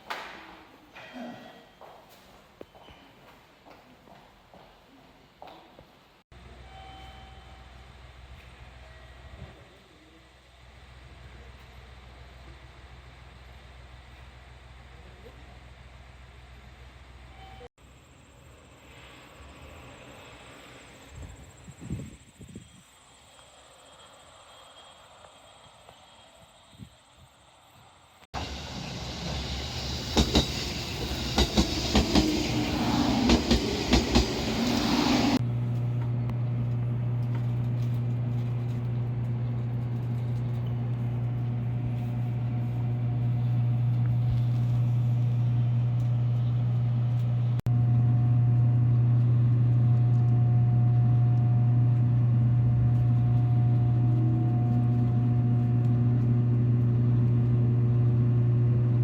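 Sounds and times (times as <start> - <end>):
train low hum: 6.3 - 59.0
train rushing noise: 28.4 - 35.4.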